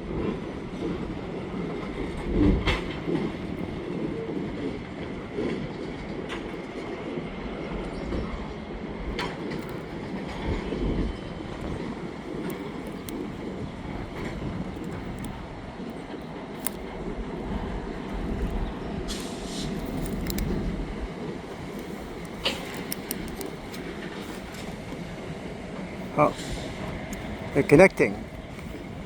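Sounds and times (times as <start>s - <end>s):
train rolling with low rumble: 0.0s - 29.0s
wheels and couplers clicking: 2.6s - 5.5s, 9.1s - 29.0s.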